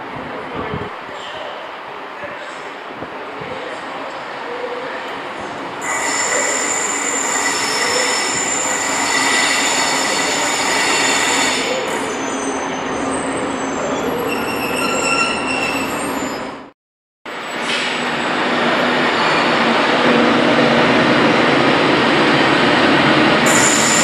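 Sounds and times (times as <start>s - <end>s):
high-pitched squealing: 23.4s - 24.0s.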